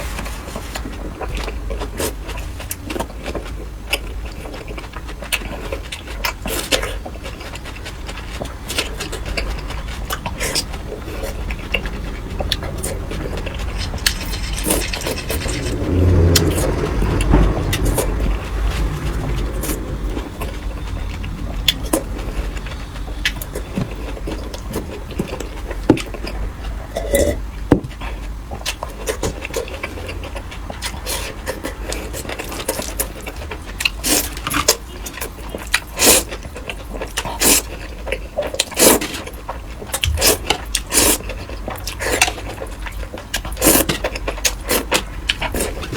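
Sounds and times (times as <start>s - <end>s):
chewing crackles: 0.8s - 45.9s
low rumble: 8.3s - 27.7s, 40.0s - 41.9s
utensil clinks and scraping: 12.4s - 17.9s.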